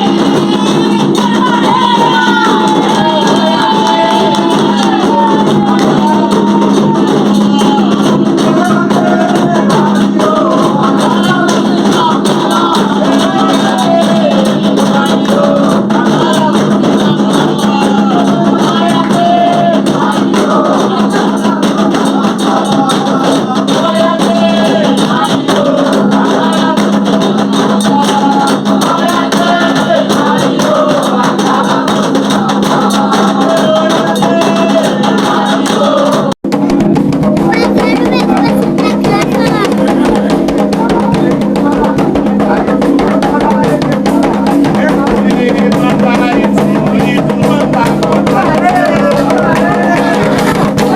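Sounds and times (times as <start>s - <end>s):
shaken percussion: 0.0s - 50.9s
voices singing together: 0.0s - 50.9s.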